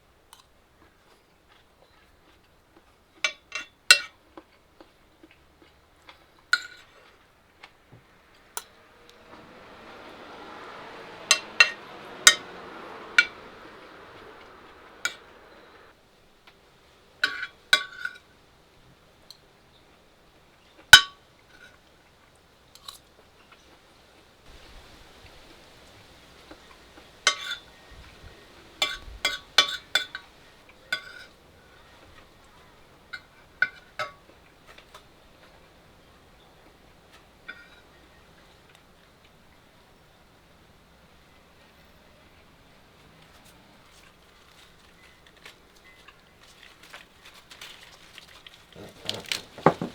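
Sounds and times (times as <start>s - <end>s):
soft hiss: 6.8s - 15.9s, 24.5s - 38.8s
dishes and utensils clinking: 48.8s - 49.9s.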